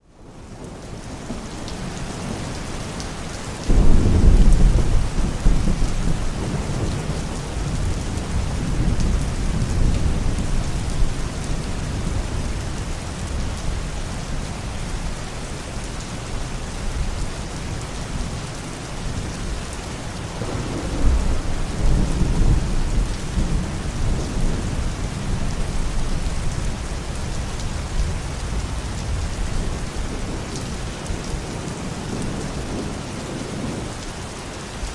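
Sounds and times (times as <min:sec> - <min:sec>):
steady rain: 0:00.0 - 0:34.9
thunder rumbling: 0:03.6 - 0:13.8, 0:20.2 - 0:33.8
loud thunder clap: 0:03.7 - 0:07.1.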